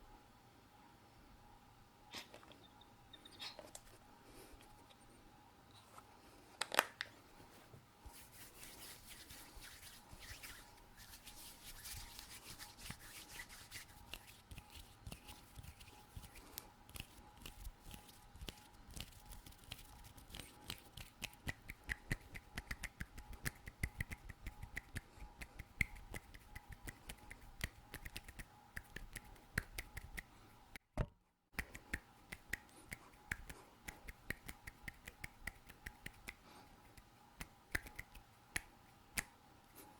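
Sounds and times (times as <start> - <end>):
skin rubbing and scratching: 8.1 - 21.6
finger clicks and taps: 19.7 - 30.3, 31.0 - 39.4.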